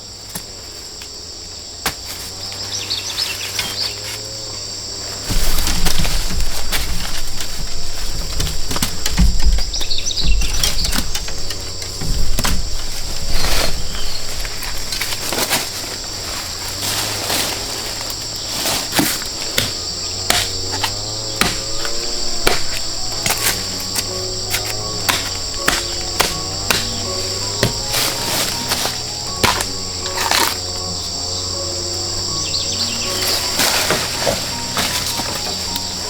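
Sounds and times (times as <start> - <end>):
insects shrilling: 0.0 - 36.0
sharp knocks: 19.0 - 30.7.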